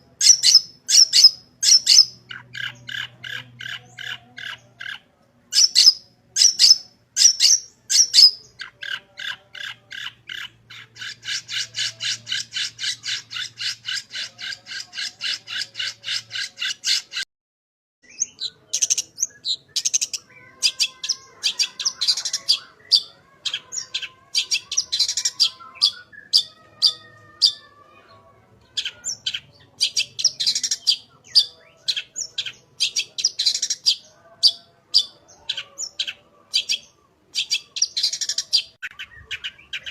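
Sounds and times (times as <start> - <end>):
bird whistled phrases: 5.6 - 8.8.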